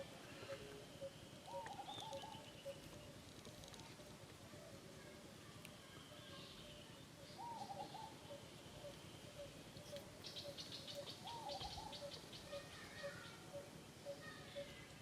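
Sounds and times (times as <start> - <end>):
short wavering bird calls: 0.0 - 3.1, 6.4 - 14.8.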